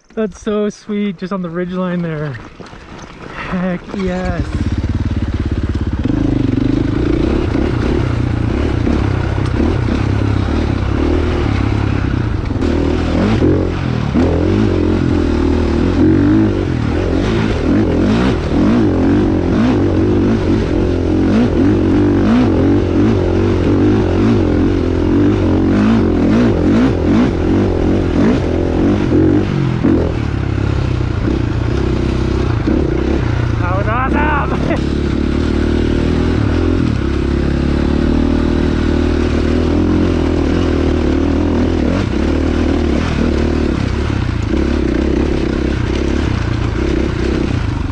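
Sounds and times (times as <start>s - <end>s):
knocks and clatter from riding: 1.4s - 6.3s
dirt bike engine revving: 3.4s - 47.9s.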